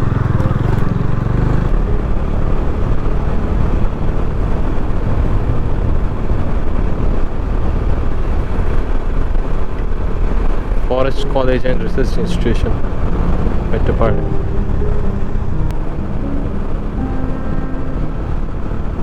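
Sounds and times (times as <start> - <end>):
motorcycle engine running: 0.0 - 11.0
wind noise on microphone: 0.0 - 19.0.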